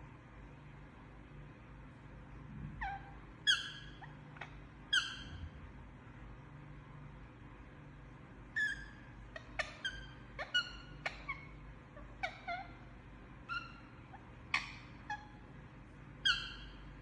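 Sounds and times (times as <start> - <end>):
parrot soft chirps and squeaks: 2.7 - 5.6, 8.5 - 15.5, 16.2 - 17.0.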